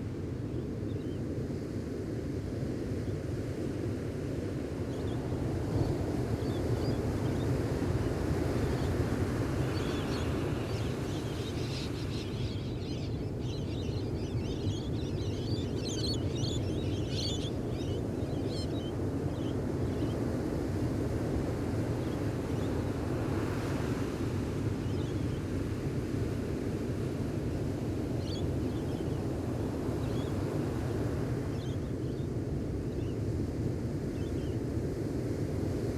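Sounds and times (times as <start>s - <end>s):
birds chirping: 9.8s - 20.1s.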